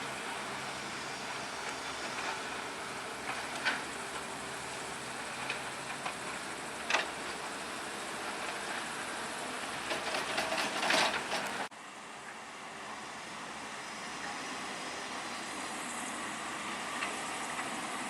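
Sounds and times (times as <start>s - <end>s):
heavy construction machinery engine: 0.0s - 18.0s
rattling clatter: 5.2s - 11.7s.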